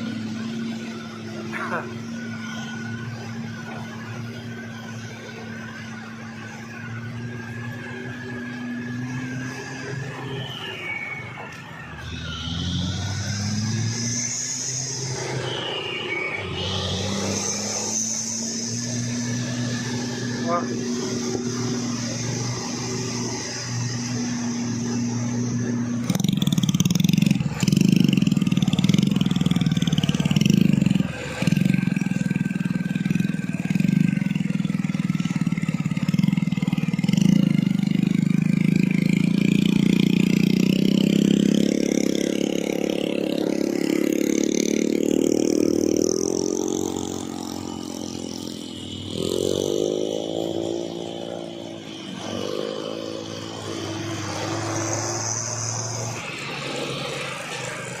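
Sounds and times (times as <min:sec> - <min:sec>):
truck diesel engine droning: 0:00.0 - 0:58.0
truck engine short revs: 0:09.0 - 0:58.0.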